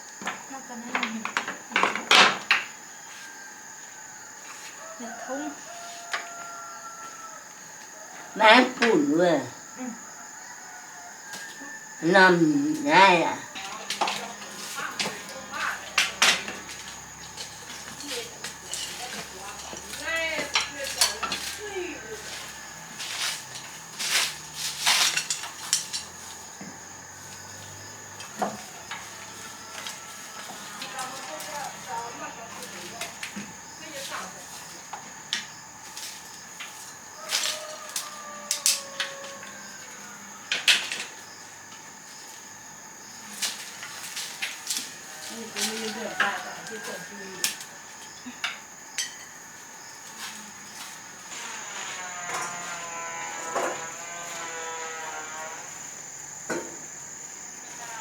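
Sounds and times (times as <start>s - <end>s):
insects chirping: 0.0s - 58.0s
cooking utensils and pots clattering: 13.6s - 21.6s, 23.1s - 26.2s, 48.5s - 49.4s.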